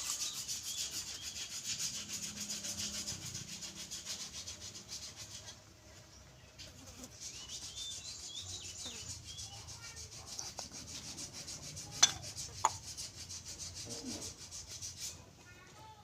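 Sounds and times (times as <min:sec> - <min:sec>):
rubbing and scraping on wood: 0:00.0 - 0:15.9.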